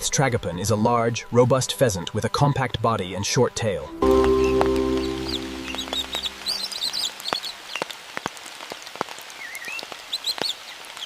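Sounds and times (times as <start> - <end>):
held music chord: 3.9 - 7.2
rain hissing: 4.0 - 11.0
raindrops ticking: 4.0 - 11.0
small birds chirping: 4.4 - 8.0, 8.8 - 11.0.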